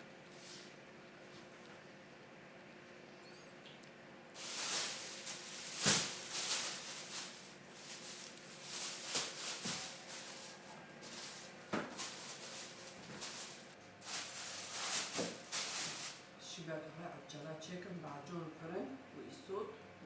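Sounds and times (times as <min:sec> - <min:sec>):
rustling and scraping: 0:04.4 - 0:16.2.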